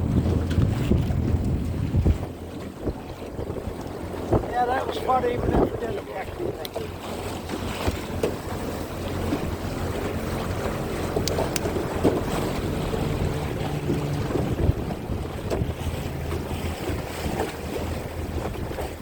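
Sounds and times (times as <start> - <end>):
boat motor humming: 0.0 - 19.0
wind buffeting microphone: 0.0 - 19.0.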